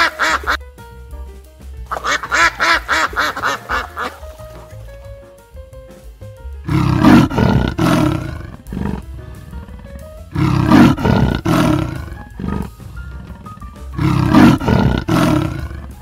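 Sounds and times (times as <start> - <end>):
background music: 0.0 - 16.0
big cat rasping grunts: 6.7 - 13.4, 14.0 - 16.0.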